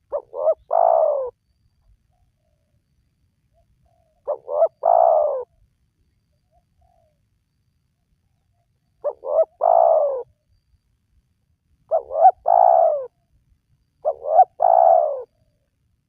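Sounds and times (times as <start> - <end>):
dove cooing: 0.0 - 1.4, 3.9 - 5.6, 9.0 - 10.3, 11.9 - 13.2, 14.0 - 15.5.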